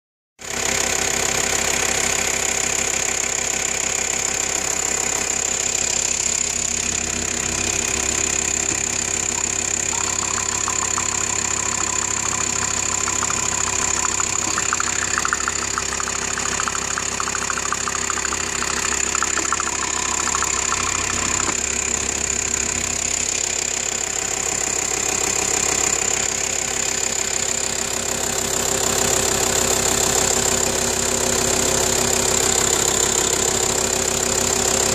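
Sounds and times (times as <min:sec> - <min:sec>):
diesel engine running: 0:04.8 - 0:26.8.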